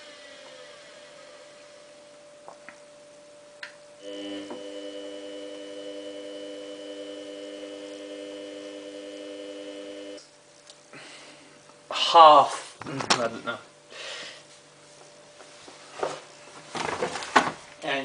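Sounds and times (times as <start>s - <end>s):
washing machine humming: 3.9s - 10.2s.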